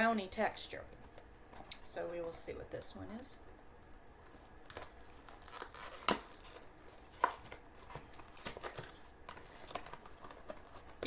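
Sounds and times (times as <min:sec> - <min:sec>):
plastic wrapper crinkling: 0:03.8 - 0:11.0.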